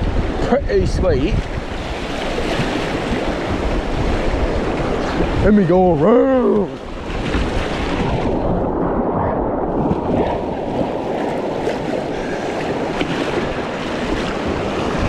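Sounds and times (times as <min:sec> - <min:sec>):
paddle splashes: 0:01.4 - 0:05.5, 0:06.4 - 0:08.5, 0:09.7 - 0:15.0.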